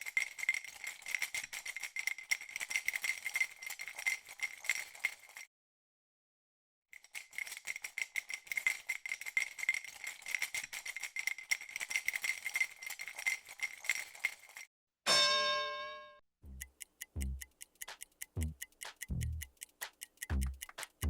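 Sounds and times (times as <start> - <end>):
small metal objects rattling: 0.0 - 5.5, 6.9 - 14.7.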